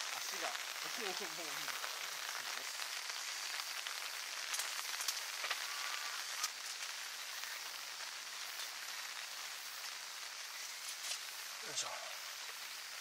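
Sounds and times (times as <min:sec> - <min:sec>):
loud single raindrops: 0:00.0 - 0:13.0
rain on a tarp: 0:00.0 - 0:13.0.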